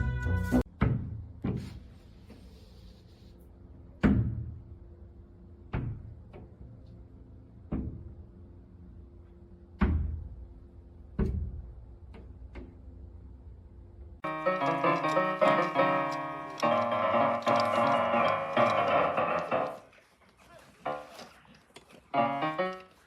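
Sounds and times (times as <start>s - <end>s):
piano music: 14.2s - 19.9s, 22.1s - 23.0s.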